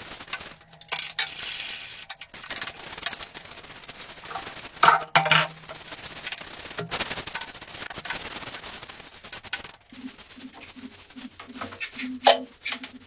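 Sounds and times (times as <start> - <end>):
surface being scrubbed: 0.0 - 5.8.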